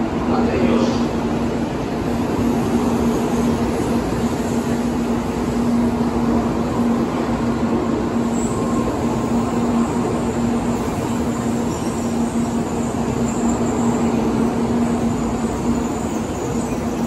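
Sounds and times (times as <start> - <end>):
train rumbling slowly: 0.0 - 17.0.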